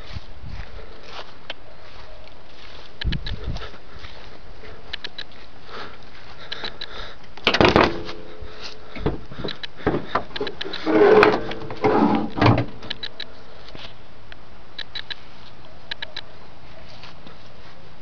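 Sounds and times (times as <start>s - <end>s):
clunks and knocks: 7.4s - 13.0s
short creaks: 7.4s - 13.2s.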